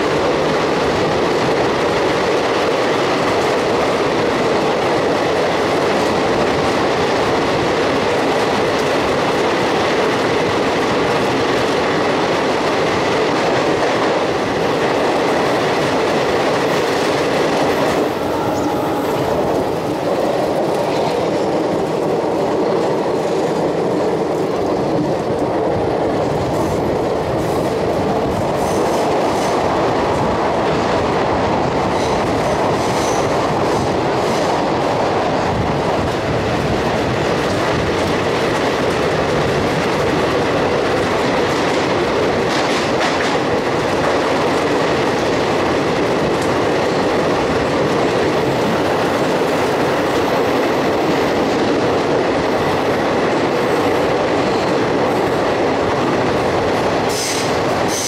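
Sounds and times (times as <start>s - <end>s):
train wheels clickety-clack: 0.0s - 58.0s.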